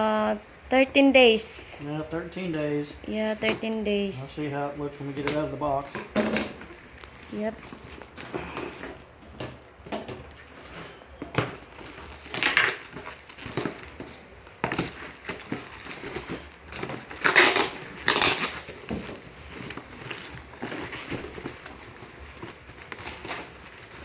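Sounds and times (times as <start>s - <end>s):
cardboard box being torn open: 11.3s - 24.0s.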